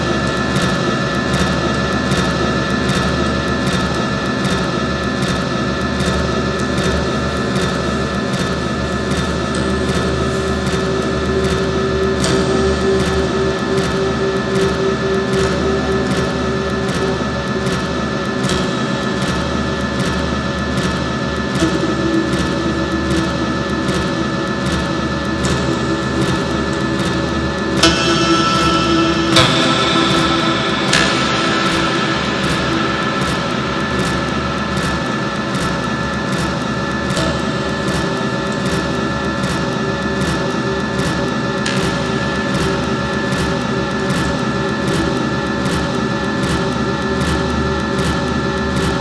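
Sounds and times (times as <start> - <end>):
feedback noise drone: 0.0 - 49.0
deep hum: 9.4 - 36.3.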